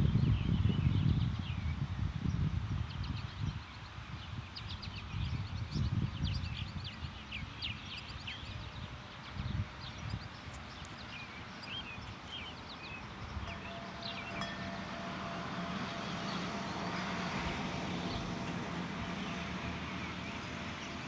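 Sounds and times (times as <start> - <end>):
wind buffeting microphone: 0.0 - 21.0
small birds chirping: 3.0 - 14.8
faint road vehicle hum: 3.6 - 21.0.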